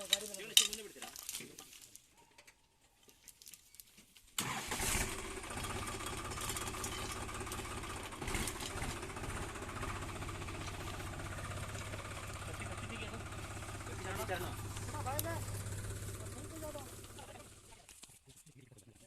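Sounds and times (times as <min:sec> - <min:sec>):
diesel engine running: 0:04.4 - 0:17.8.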